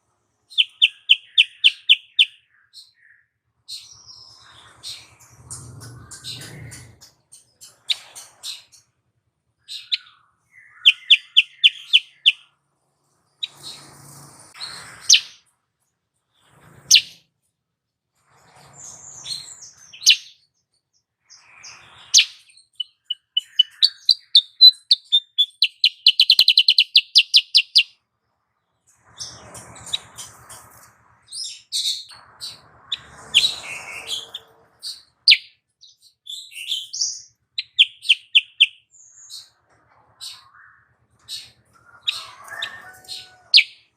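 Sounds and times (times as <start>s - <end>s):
bird chirps and rapid trills: 0.5s - 9.0s, 9.6s - 15.5s, 18.3s - 28.0s, 28.7s - 39.6s.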